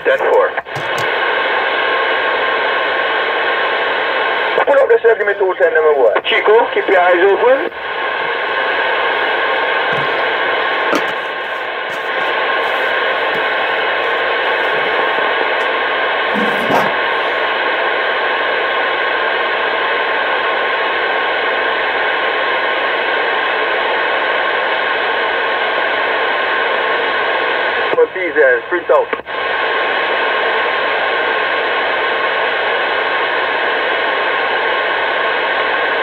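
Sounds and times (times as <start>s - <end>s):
radio static hiss: 0.0s - 36.0s.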